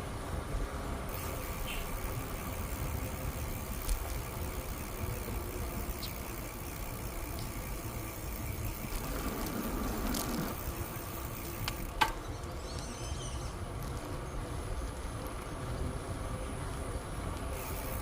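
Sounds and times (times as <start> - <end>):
wind and tyre rumble: 0.0 - 18.0
high insect buzz: 1.1 - 13.6.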